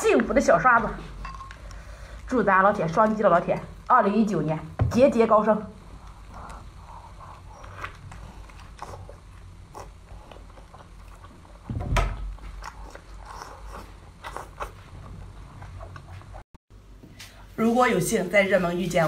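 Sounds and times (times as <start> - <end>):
person biting and chewing: 6.4 - 11.6, 12.2 - 14.8
loud thump: 11.6 - 12.3.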